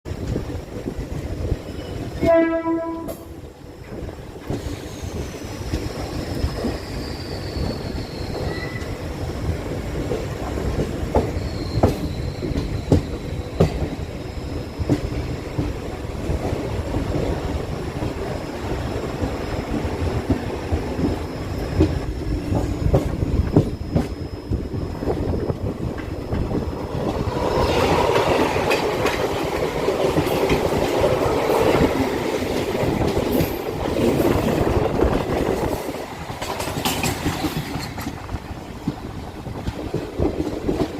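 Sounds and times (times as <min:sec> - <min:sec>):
train wheels clattering over rail joints: 0:03.1 - 0:09.0, 0:10.0 - 0:18.3, 0:25.0 - 0:40.9
high wheel squeals: 0:04.6 - 0:09.6, 0:11.2 - 0:15.4.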